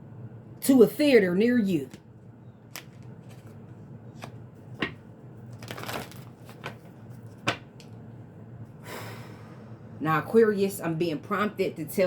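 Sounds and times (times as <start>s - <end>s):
card snaps and taps: 2.7s - 3.4s, 4.2s - 5.0s, 7.4s - 7.9s
cards being shuffled: 2.7s - 7.9s.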